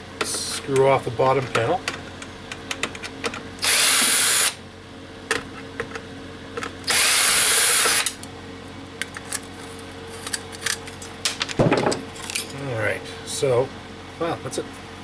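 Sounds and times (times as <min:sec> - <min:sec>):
power drill spinning: 0:03.6 - 0:04.6, 0:06.9 - 0:08.2.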